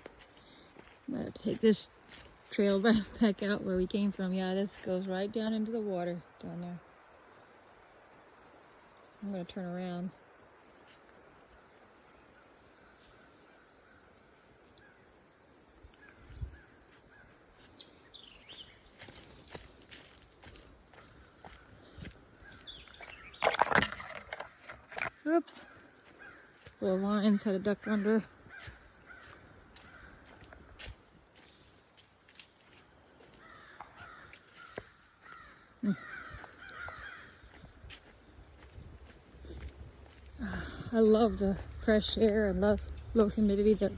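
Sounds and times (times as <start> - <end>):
crickets trilling: 0.0 - 43.9
crows cawing: 33.4 - 37.5.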